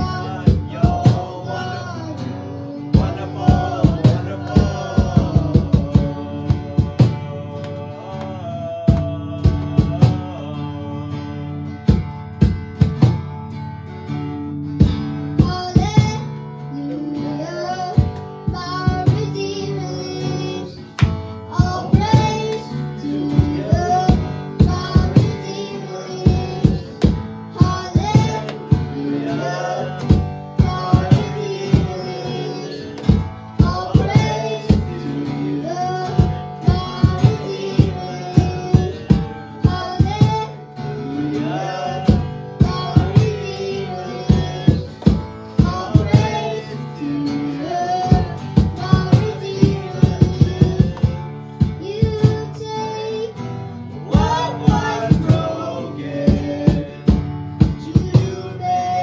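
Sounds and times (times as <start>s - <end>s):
voices singing: 0.0s - 12.4s, 14.8s - 59.0s
guitar and instruments playing: 0.0s - 59.0s.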